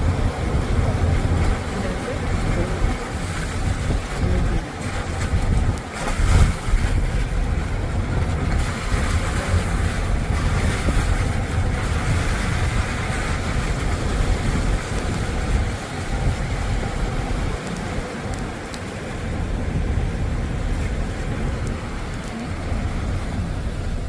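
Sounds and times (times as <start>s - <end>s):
sea surf washing on shore: 0.0s - 24.0s
wind buffeting microphone: 0.0s - 24.0s.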